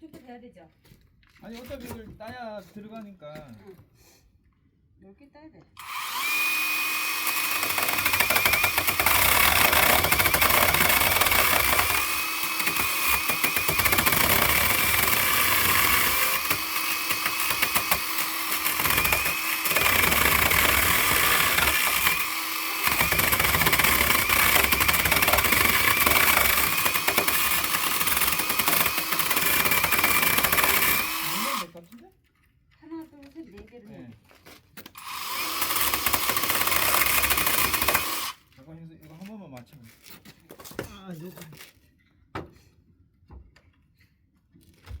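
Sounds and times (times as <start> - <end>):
electric saw cutting wood: 5.8 - 31.8, 35.0 - 38.4.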